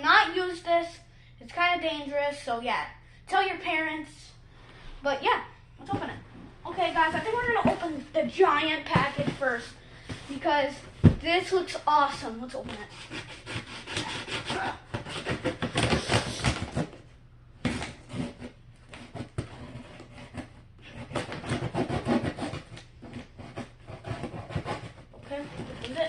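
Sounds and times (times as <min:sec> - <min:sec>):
blade scraping tape and cardboard: 0:12.6 - 0:17.0, 0:17.6 - 0:26.0
cardboard tearing: 0:12.9 - 0:17.0.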